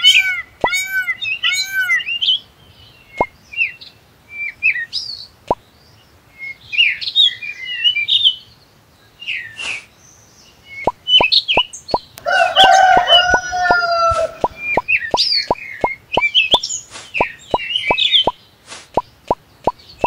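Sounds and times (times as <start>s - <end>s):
small birds chirping: 0.0s - 20.0s
rooster crowing: 12.2s - 14.6s.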